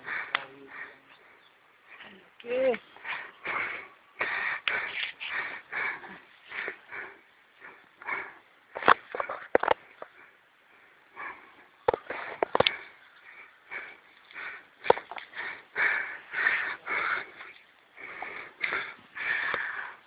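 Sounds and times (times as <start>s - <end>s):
person breathing hard: 0.0s - 2.2s, 3.0s - 20.0s.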